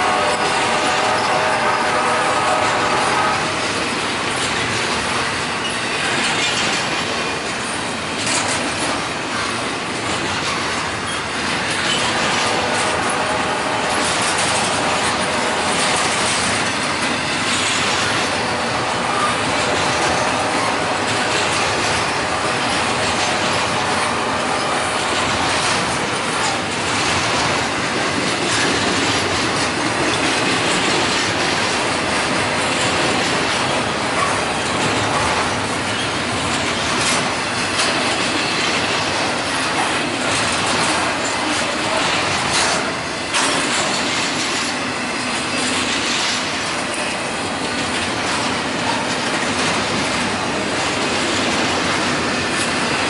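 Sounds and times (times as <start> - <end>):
train wheels on rail: 0.0 - 53.0
wheels clicking over rail joints: 2.5 - 53.0.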